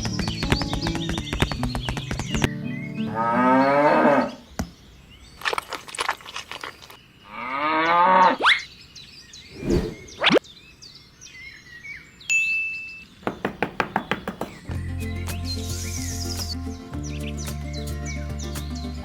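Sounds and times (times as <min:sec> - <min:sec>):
cow mooing: 0:03.1 - 0:04.4
background music: 0:14.7 - 0:19.0.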